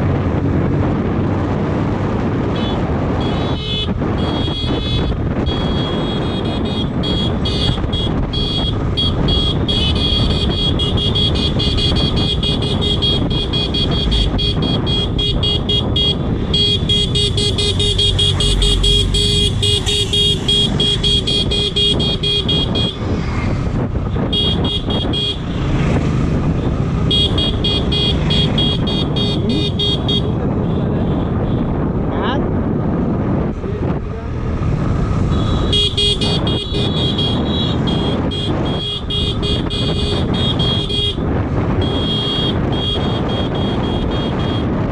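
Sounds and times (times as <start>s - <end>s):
motorcycle engine: 0.0s - 44.9s
road noise: 0.0s - 44.9s
wind: 0.0s - 44.9s.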